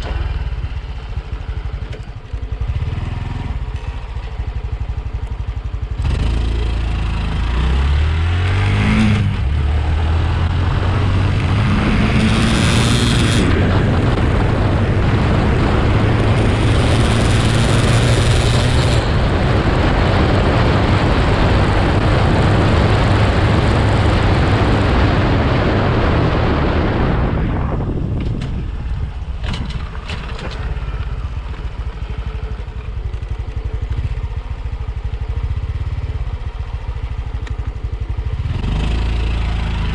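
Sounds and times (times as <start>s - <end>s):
motorcycle engine accelerating: 0.0s - 39.9s
wind rushing: 7.5s - 30.0s.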